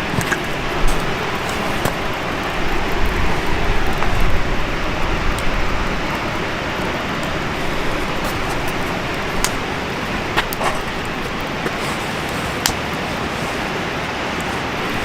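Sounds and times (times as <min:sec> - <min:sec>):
campfire rushing: 0:00.0 - 0:15.0
fire crackles: 0:00.0 - 0:15.0.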